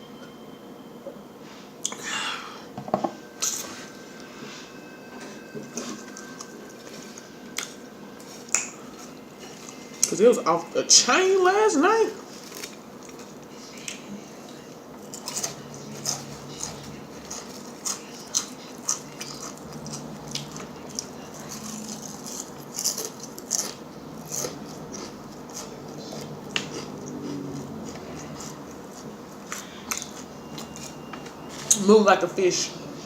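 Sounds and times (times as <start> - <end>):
person chewing food: 5.6 - 10.1, 12.2 - 31.7.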